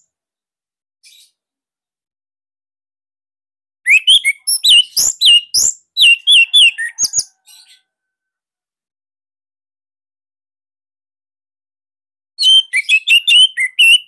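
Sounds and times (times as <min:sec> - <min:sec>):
thrush singing whistled notes: 0:03.9 - 0:07.3, 0:12.4 - 0:14.0.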